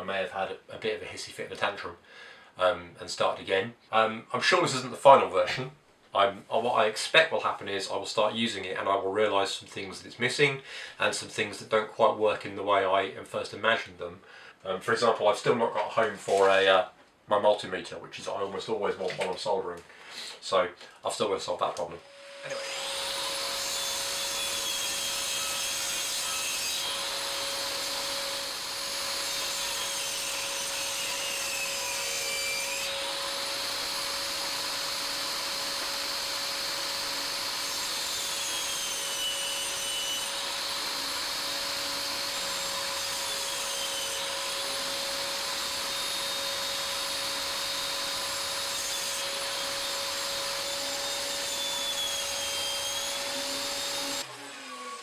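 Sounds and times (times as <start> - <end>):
power tool whining on wood: 22.0 - 55.0.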